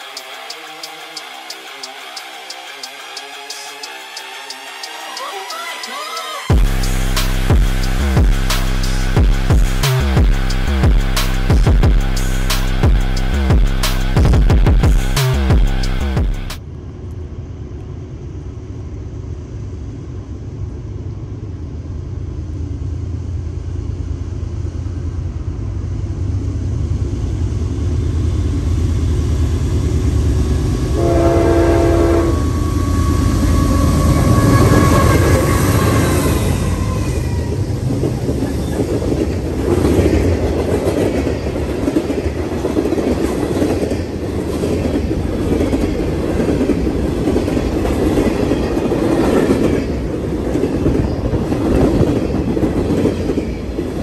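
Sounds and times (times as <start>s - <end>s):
diesel locomotive engine rumble: 6.5s - 14.2s, 14.8s - 54.0s
train horn blast: 30.8s - 37.6s
clickety-clack of train wheels: 32.4s - 54.0s.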